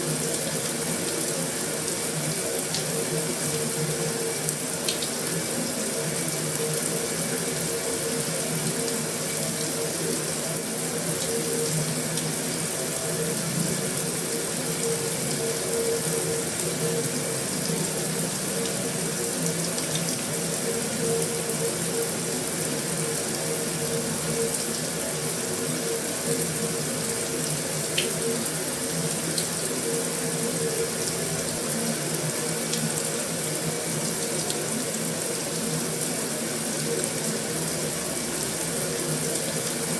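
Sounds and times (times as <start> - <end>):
heavy rain on a metal roof: 0.0 - 39.9.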